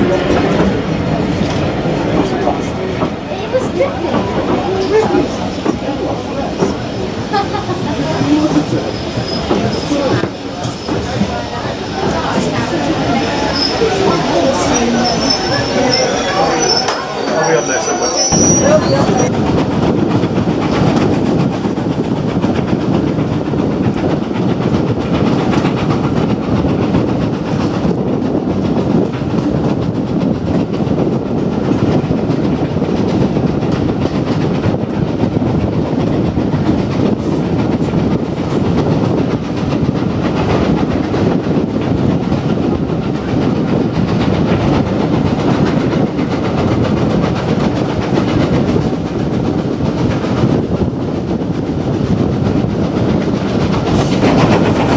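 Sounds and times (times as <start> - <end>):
train coaches rumbling: 0.0 - 54.9.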